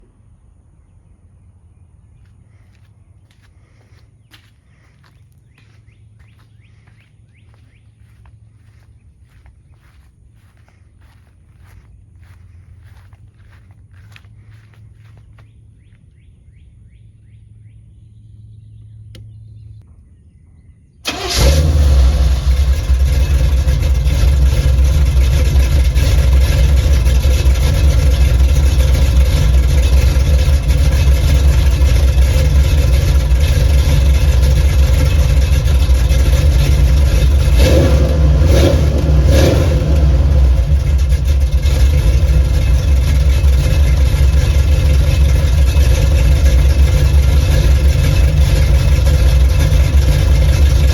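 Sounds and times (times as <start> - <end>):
engine idling loud and deep: 2.7 - 15.9, 21.1 - 50.9
car engine starting: 21.0 - 50.9.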